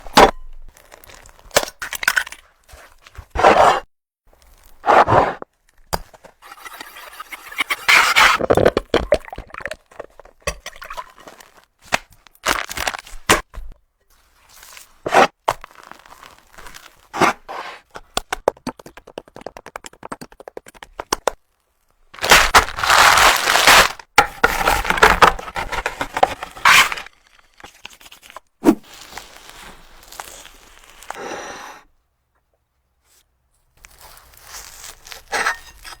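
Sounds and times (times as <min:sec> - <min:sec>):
utensils scraping cake: 0:04.6 - 0:05.4, 0:06.2 - 0:08.5, 0:24.4 - 0:28.4, 0:34.0 - 0:36.0
cake cracking: 0:22.2 - 0:31.2.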